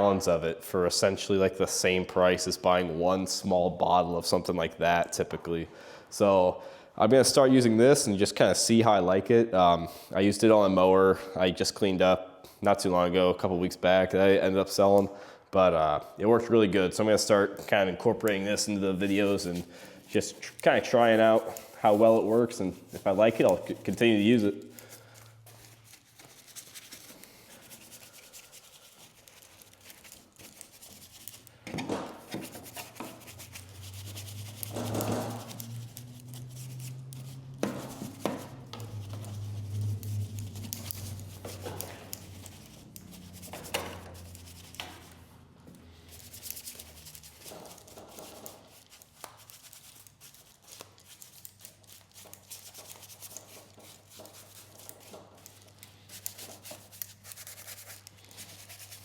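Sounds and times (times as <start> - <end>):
scrubbing and rubbing: 18.2 - 31.5, 32.2 - 45.3, 46.0 - 59.0.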